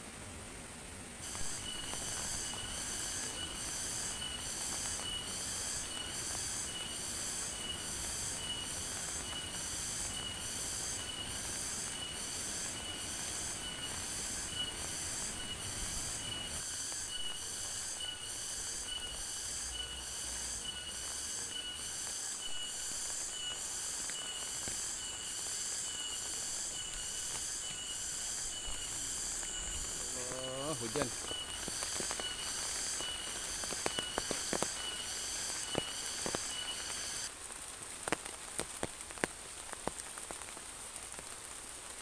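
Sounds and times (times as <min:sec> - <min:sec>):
thin steady whine: 0:00.0 - 0:37.4
insect calling in pulses: 0:01.2 - 0:37.3.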